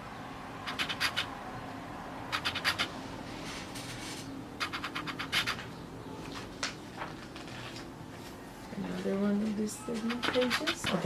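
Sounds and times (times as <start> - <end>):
magazine pages rustling: 6.3 - 8.4.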